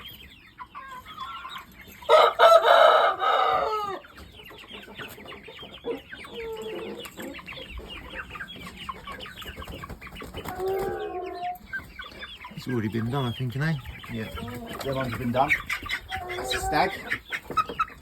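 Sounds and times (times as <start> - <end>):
chicks peeping and clucking: 0.0 - 18.0
rooster crowing: 2.1 - 4.0.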